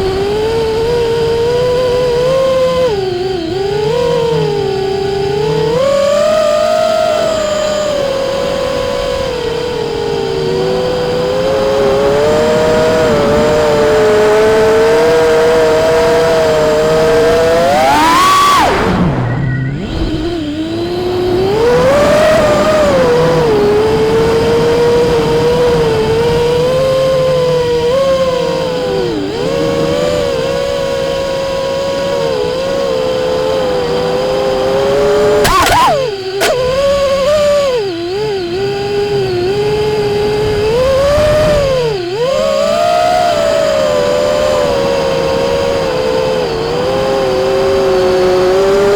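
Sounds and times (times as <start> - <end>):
quadcopter motors whining: 0.0 - 48.9
sharp click: 35.4 - 36.9.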